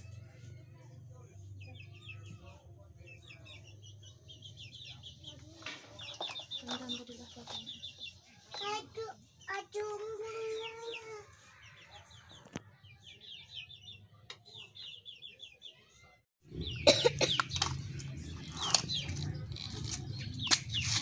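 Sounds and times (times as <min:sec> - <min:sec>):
bird calls: 0:16.5 - 0:21.0.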